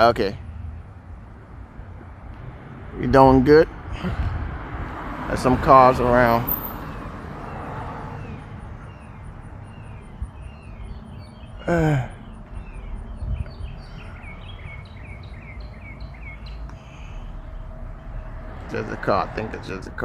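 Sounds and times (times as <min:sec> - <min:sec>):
distant traffic rumble: 0:00.0 - 0:20.0
bird chirping: 0:06.5 - 0:18.8
person grunting: 0:11.6 - 0:12.2.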